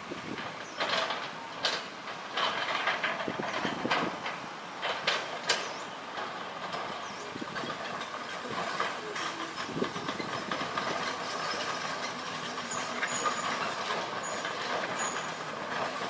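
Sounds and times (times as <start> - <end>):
excavator machine noise: 0.0 - 16.0
metallic clanks and rattles: 0.2 - 16.0.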